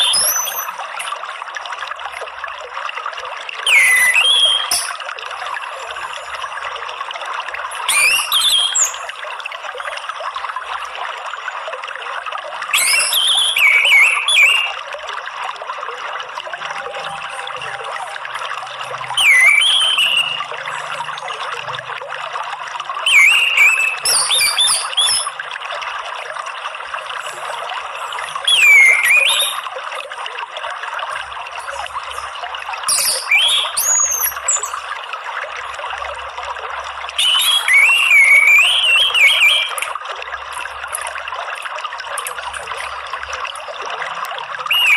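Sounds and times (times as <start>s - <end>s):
thrush singing whistles: 0.0s - 0.8s, 3.6s - 5.1s, 7.8s - 9.2s, 12.7s - 14.9s, 16.7s - 21.7s, 23.0s - 25.4s, 27.9s - 29.7s, 32.9s - 34.9s, 37.1s - 39.9s, 44.7s - 44.9s
trickle of running water: 0.0s - 44.9s.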